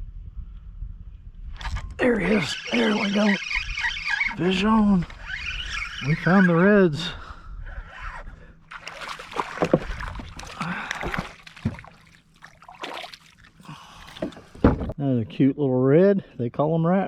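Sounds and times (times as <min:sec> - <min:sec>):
fish splashing at surface: 0:08.7 - 0:13.6
water sloshing and dripping: 0:08.7 - 0:15.0.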